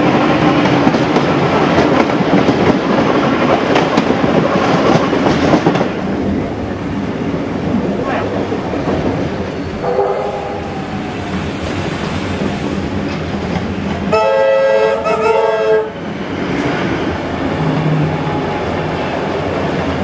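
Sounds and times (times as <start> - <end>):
train wheels clattering on rails: 0.0 - 20.0
train horn chord: 9.8 - 10.7, 14.1 - 16.0.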